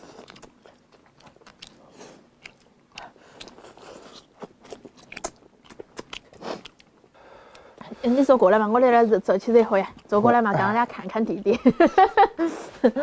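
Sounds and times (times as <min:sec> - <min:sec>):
person chewing food: 0:00.0 - 0:07.8
mouth clicks and smacks: 0:02.4 - 0:07.7.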